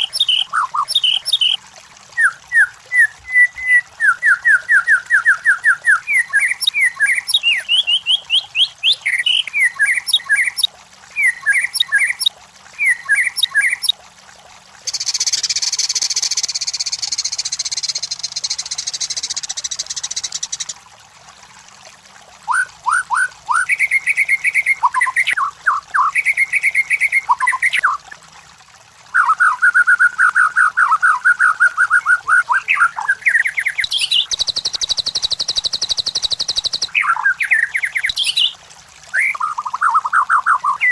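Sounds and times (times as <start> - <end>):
bird singing whistles and trills: 0.0 - 1.6, 2.2 - 13.9, 14.9 - 20.7, 22.5 - 28.0, 29.2 - 40.9
high buzzy bird call: 14.8 - 20.7, 29.2 - 40.9.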